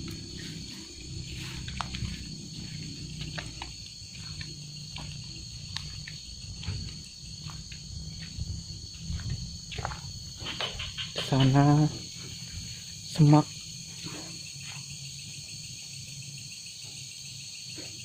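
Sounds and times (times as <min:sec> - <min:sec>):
low rumble: 0:00.0 - 0:10.4
crickets trilling: 0:00.0 - 0:18.0.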